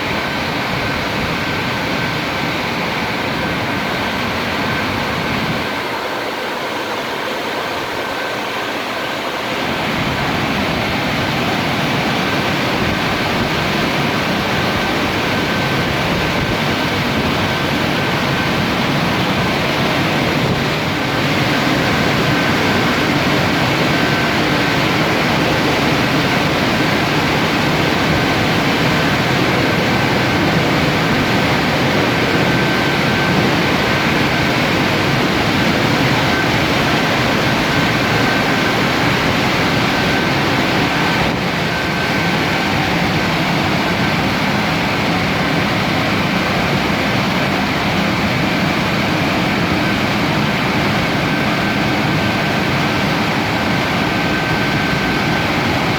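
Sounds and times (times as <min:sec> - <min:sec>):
car wash machinery rushing: 0:00.0 - 0:55.9
thin high whine: 0:00.0 - 0:55.9.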